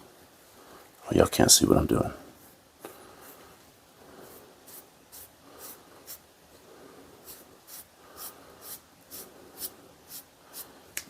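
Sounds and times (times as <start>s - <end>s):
applicator strokes on wood: 7.2s - 10.7s.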